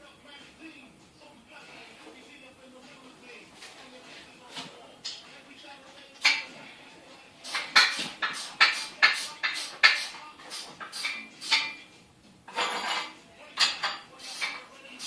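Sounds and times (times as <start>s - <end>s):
metal rattling scrape: 12.5s - 13.2s.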